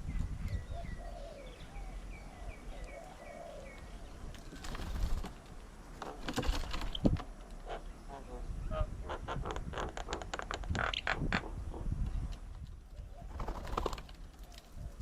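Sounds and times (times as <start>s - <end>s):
bird chirping: 0.0s - 4.9s
doves cooing: 0.5s - 15.0s
rough flurries of flapping: 4.4s - 5.5s, 6.1s - 7.2s, 13.3s - 14.4s.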